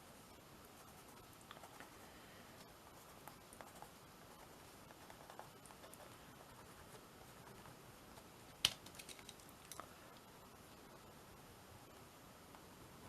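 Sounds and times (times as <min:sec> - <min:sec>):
art materials scratching and tapping: 0:02.6 - 0:09.9.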